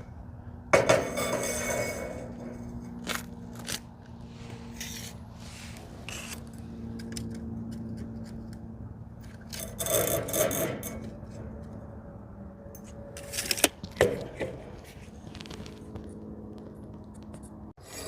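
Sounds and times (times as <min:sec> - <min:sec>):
steady low hum: 0:00.0 - 0:18.0
metal parts scraping: 0:01.0 - 0:08.3, 0:09.2 - 0:11.5, 0:12.8 - 0:13.7.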